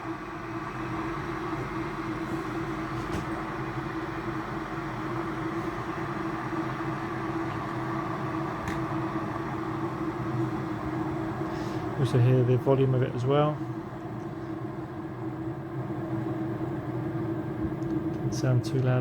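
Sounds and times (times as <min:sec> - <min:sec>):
electric kettle boiling water: 0:00.0 - 0:19.0
faint kettle clicks: 0:08.6 - 0:09.0.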